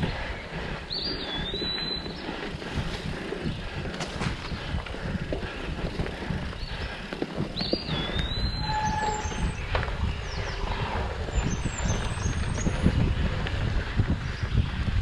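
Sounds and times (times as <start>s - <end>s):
wind and tyre rumble: 0.0s - 15.0s
bike knocks and rattles: 1.5s - 12.8s.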